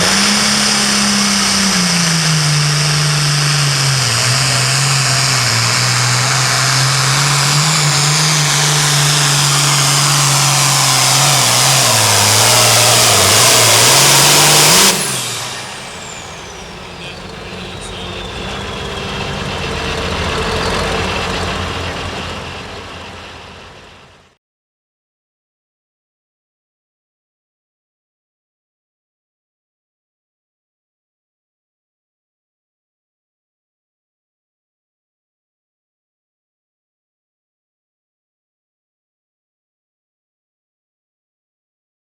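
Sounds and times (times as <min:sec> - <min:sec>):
turbo whine: 0:00.0 - 0:24.3
diesel tractor engine under load: 0:00.0 - 0:24.4.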